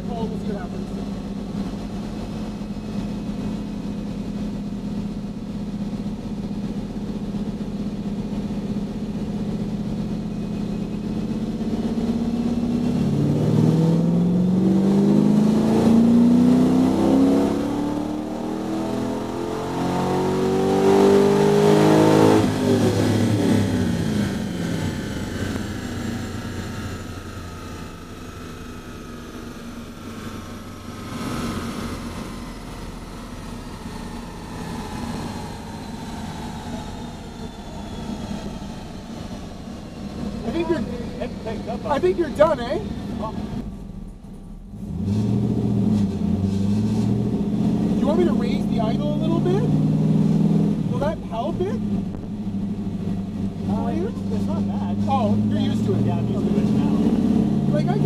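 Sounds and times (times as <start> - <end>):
car engine revving on dyno: 10.8 - 43.8, 44.6 - 58.0.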